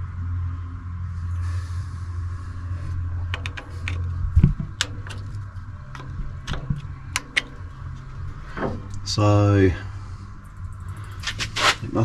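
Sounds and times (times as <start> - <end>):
steady low hum: 0.0 - 12.0
heavy thump: 7.7 - 9.2.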